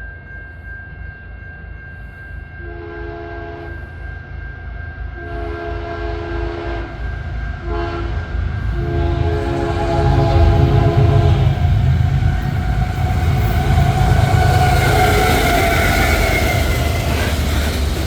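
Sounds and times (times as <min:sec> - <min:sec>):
locomotive air horn blasts: 0:02.6 - 0:03.8, 0:05.2 - 0:17.0
diesel locomotives rumbling: 0:05.0 - 0:18.0.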